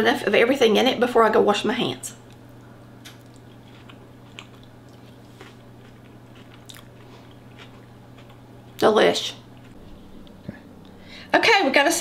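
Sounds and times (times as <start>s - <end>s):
steady low hum: 0.0s - 12.0s
soft chewing clicks and smacks: 3.0s - 8.8s.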